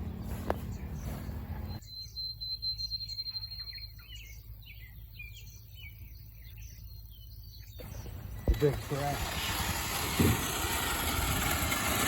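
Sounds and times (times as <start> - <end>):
birds chirping: 0.0 - 10.4.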